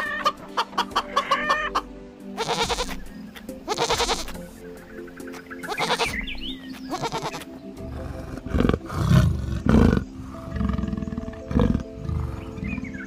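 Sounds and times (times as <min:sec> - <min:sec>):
background music: 0:00.0 - 0:13.0
large animal deep roars: 0:07.9 - 0:12.9.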